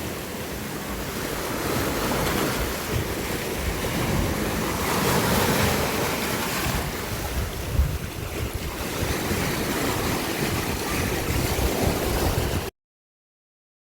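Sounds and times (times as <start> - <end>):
sea waves washing: 0.0 - 12.7
wind buffeting microphone: 1.7 - 12.7.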